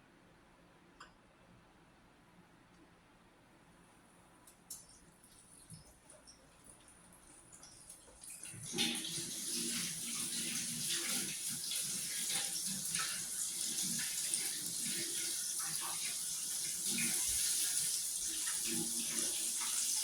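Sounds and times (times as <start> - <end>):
chicken sizzling in hot oil: 8.8 - 20.0.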